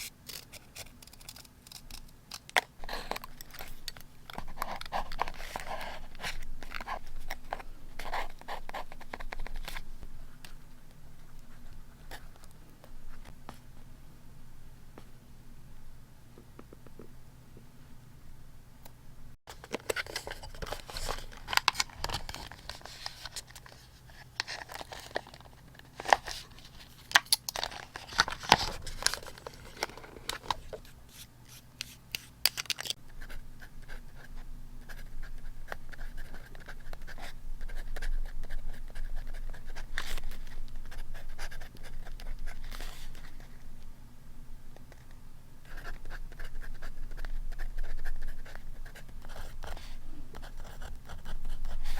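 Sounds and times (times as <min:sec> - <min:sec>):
paper rustling and crinkling: 0:19.5 - 0:31.2
scratching on paper: 0:33.1 - 0:43.5, 0:44.9 - 0:51.9.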